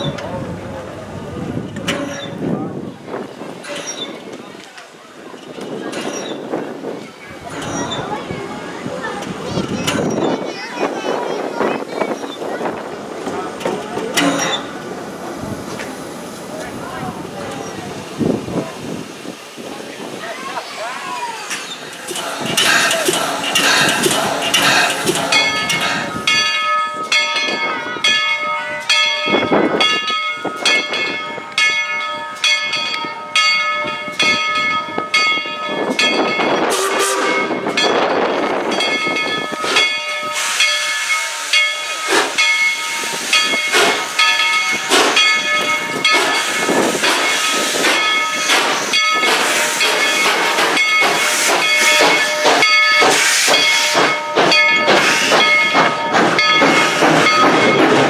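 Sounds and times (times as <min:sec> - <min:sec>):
wind gusts on microphone: 0:00.0 - 0:04.6, 0:05.2 - 0:20.5, 0:33.8 - 0:40.4
steam locomotive exhaust beating: 0:05.8 - 0:27.8, 0:34.1 - 0:58.0
steam hiss: 0:06.1 - 0:26.7, 0:38.6 - 0:58.0.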